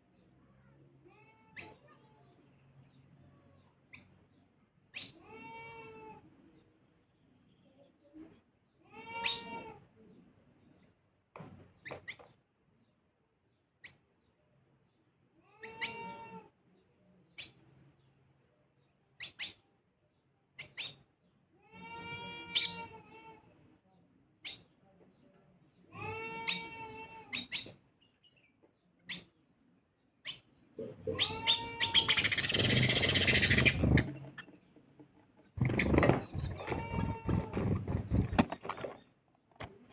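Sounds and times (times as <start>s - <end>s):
animal drawn-out call: 31.0s - 34.2s
harsh animal call: 31.0s - 34.4s.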